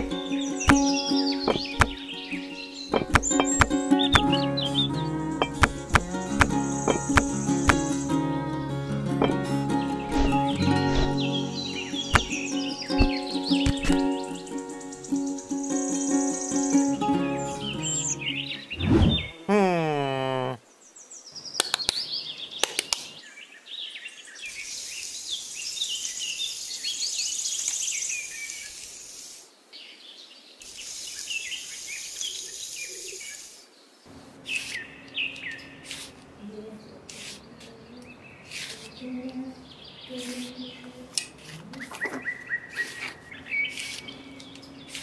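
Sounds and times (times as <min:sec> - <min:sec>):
birds chirping: 0:00.0 - 0:08.4, 0:09.2 - 0:29.2, 0:30.0 - 0:41.1, 0:41.7 - 0:45.0
steady high hiss: 0:05.0 - 0:08.3, 0:10.2 - 0:18.7, 0:24.3 - 0:29.9, 0:30.5 - 0:37.9
metal trowel scraping sand: 0:10.1 - 0:11.3, 0:35.8 - 0:36.2, 0:37.1 - 0:37.5, 0:43.7 - 0:44.1.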